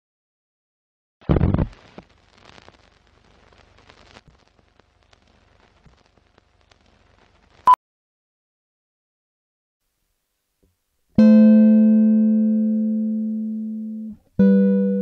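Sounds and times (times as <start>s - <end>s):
loud crackling burst: 1.2s - 7.7s
old film crackle and clicks: 1.2s - 7.7s.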